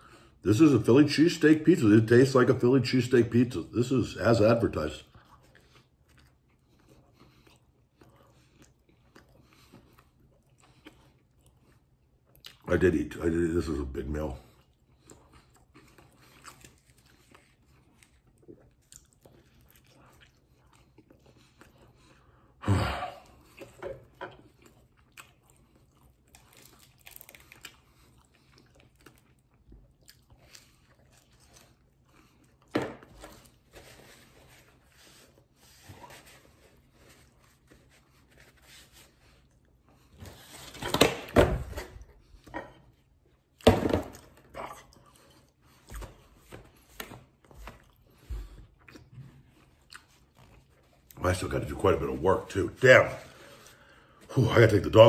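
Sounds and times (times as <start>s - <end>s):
person chewing crunchy crust: 4.8s - 12.7s, 14.1s - 40.7s, 44.2s - 51.2s.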